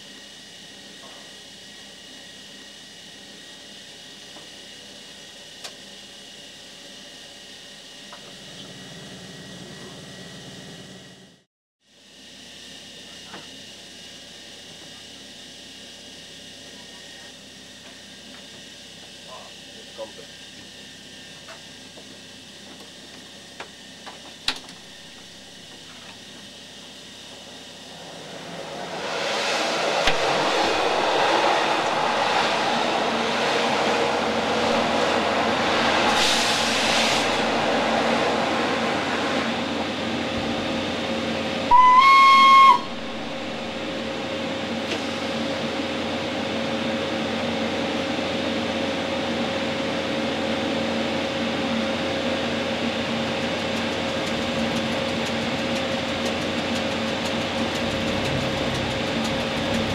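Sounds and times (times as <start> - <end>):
electric locomotive running: 7.2 - 11.4, 15.8 - 59.9
train rushing past: 26.8 - 49.1, 52.8 - 59.9
train horn: 41.7 - 43.9.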